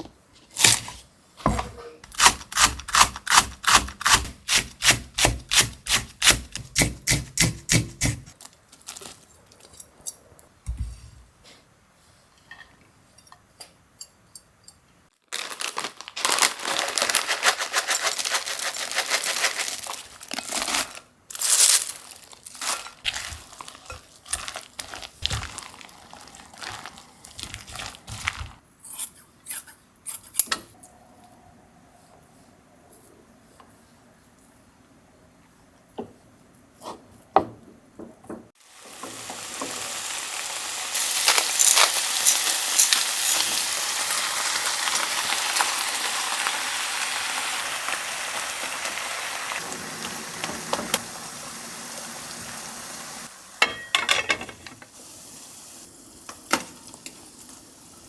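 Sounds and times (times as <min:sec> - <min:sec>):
knife chopping on cutting board: 0:00.6 - 0:08.3.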